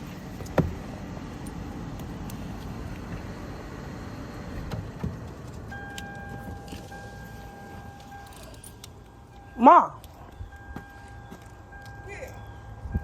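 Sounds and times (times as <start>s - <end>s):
car engine rumble: 0.0s - 13.0s
electronic car chime tone: 5.7s - 13.0s.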